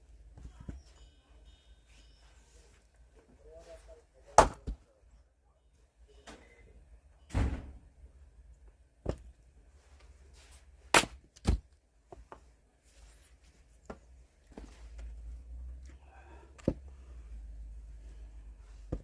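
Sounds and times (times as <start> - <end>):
firewood knocks and thuds: 10.9 - 11.7.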